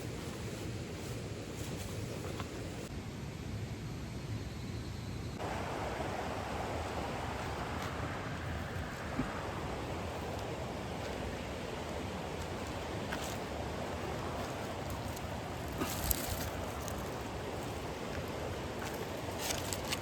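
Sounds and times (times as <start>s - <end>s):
mountain stream rushing: 5.4s - 20.0s.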